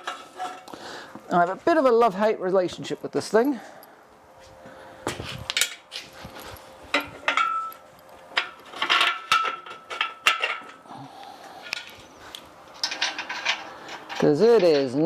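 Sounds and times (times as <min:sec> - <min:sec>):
metal engine hoist clanking: 0:00.0 - 0:00.7, 0:05.5 - 0:10.9, 0:11.6 - 0:15.0.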